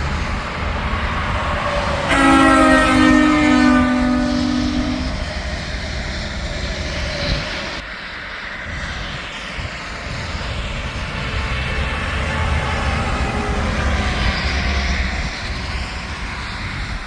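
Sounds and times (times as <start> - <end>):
trucks passing: 0.0 - 6.8, 10.0 - 16.8
highway traffic: 0.0 - 17.0.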